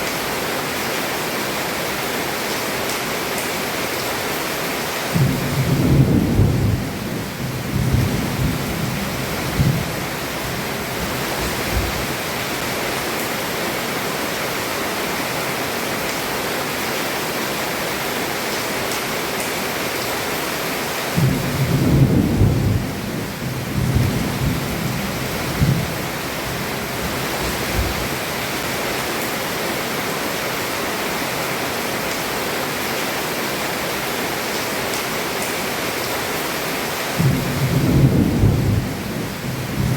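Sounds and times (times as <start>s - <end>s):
heavy rain on a roof: 0.0s - 39.9s
thunder rumbling: 5.1s - 12.2s, 21.2s - 28.3s, 37.2s - 39.9s.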